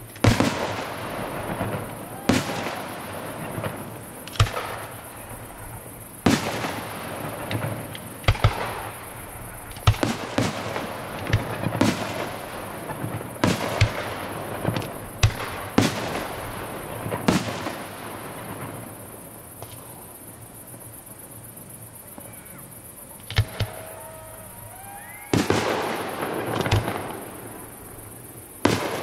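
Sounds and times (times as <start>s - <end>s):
fireworks bangs: 0.0s - 20.0s, 23.2s - 29.0s
shells bursting with rushing noise: 25.2s - 29.0s.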